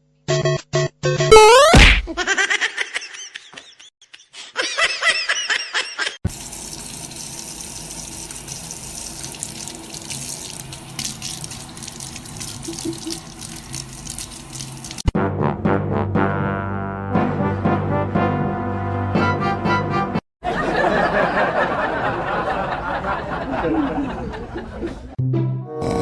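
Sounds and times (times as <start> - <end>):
running water rushing: 6.3 - 15.1.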